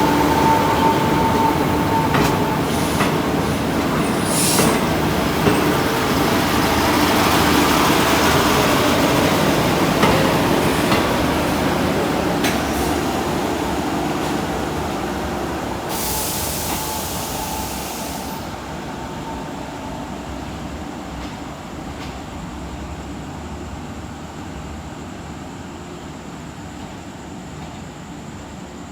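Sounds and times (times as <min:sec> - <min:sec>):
train clanks: 0:00.0 - 0:23.5
train rolling on tracks: 0:00.0 - 0:28.9
loud hiss: 0:02.6 - 0:05.2, 0:12.6 - 0:19.0.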